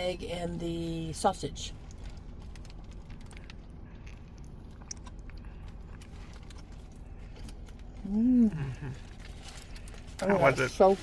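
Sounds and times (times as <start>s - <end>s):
low steady hum: 0.0s - 11.0s
small crackles: 1.6s - 8.1s
person chewing food: 1.8s - 10.2s.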